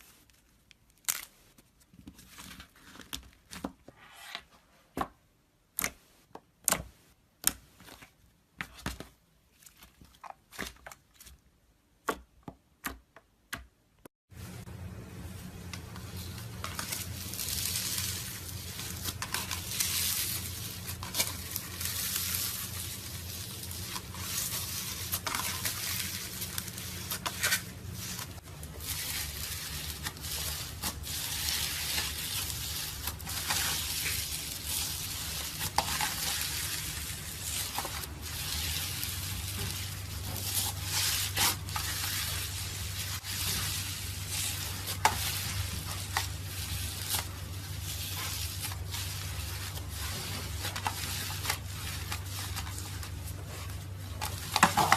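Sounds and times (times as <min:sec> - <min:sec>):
slime squishing and crackling: 0:16.0 - 0:54.9.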